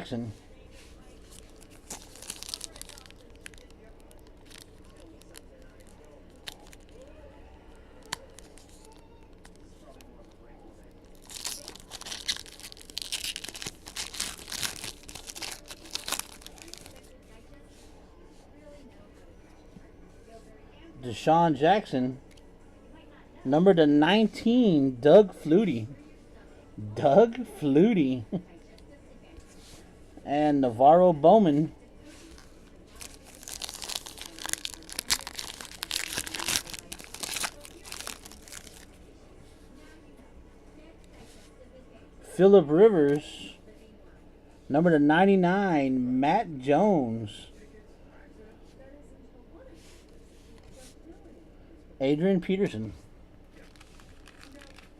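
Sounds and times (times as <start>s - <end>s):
plastic wrapper tearing and crinkling: 1.3s - 7.2s, 8.0s - 10.4s, 11.0s - 17.1s, 32.3s - 39.0s, 53.6s - 54.9s.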